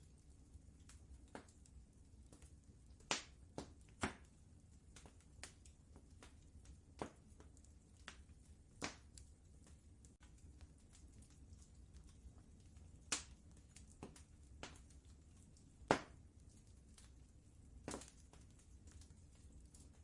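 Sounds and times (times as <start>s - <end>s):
wood fire crackling: 0.0s - 20.0s
low steady rumble: 4.3s - 20.0s.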